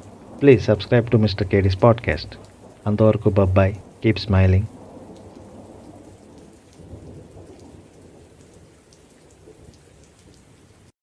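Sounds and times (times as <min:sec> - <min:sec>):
low rumble of thunder: 0:00.0 - 0:10.9
steady rain falling: 0:00.0 - 0:11.0
drops ticking: 0:00.3 - 0:04.7.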